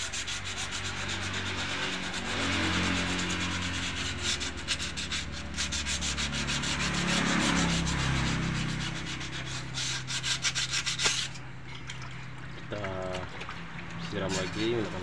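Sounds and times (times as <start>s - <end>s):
sandpaper rubbing: 0.0s - 11.4s, 14.0s - 15.0s.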